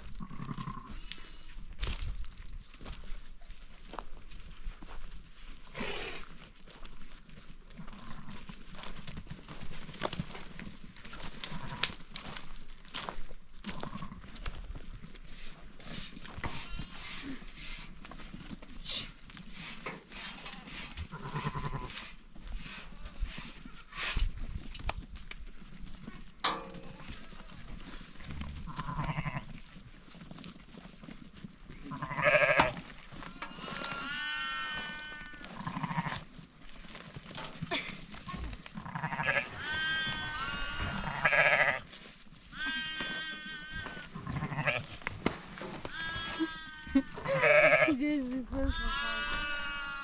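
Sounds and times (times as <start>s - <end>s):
sheep and goats bleating: 0.0s - 1.6s, 7.7s - 8.6s, 11.3s - 12.4s, 13.6s - 14.5s, 16.3s - 17.5s, 20.2s - 22.1s, 28.4s - 29.7s, 31.7s - 36.4s, 37.6s - 45.0s, 45.8s - 50.0s.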